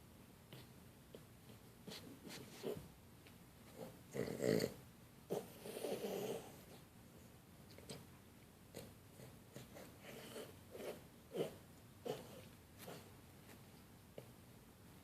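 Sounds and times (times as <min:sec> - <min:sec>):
dog snorting: 0:03.7 - 0:06.6, 0:08.7 - 0:13.1.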